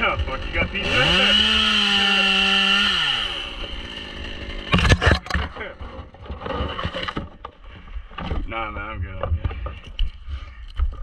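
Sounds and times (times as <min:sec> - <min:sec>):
chainsaw revving: 0:00.0 - 0:05.2.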